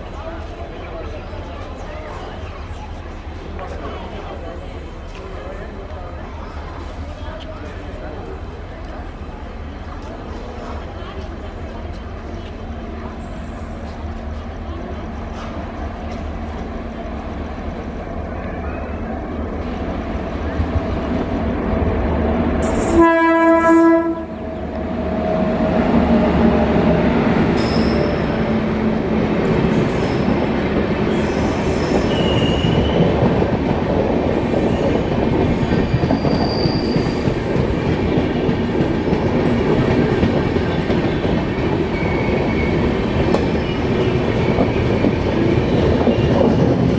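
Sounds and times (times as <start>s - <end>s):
train wheels on rails: 0.0s - 46.9s
locomotive horn blast: 22.6s - 24.4s
high squeaks of wheels: 27.5s - 28.5s, 31.1s - 33.1s, 34.4s - 37.5s, 41.8s - 45.3s.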